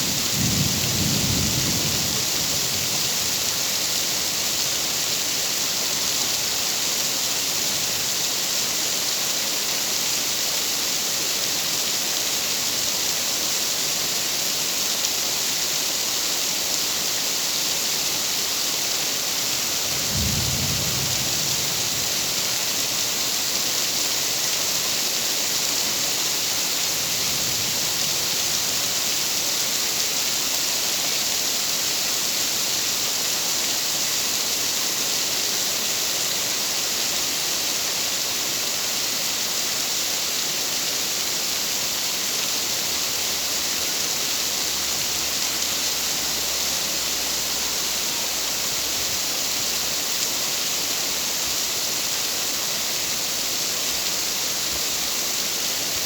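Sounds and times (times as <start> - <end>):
low rumble of thunder: 0.0 - 3.4, 19.9 - 22.7
dense rainfall hissing: 0.0 - 56.0.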